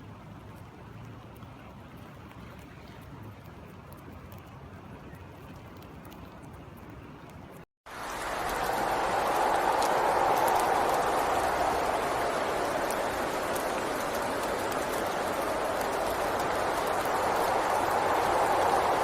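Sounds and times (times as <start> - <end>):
raindrop ticks: 5.5 - 19.0
steady rain: 7.9 - 19.0.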